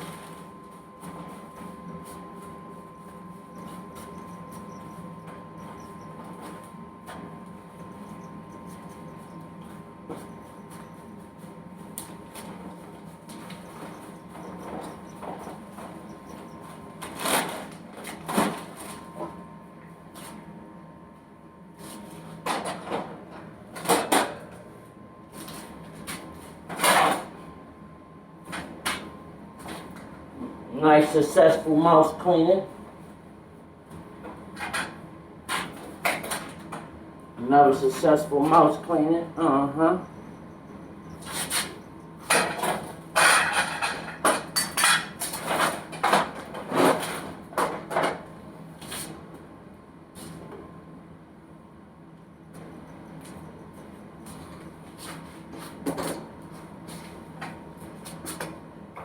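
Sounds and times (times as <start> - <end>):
faint steady hum: 0.0 - 46.1.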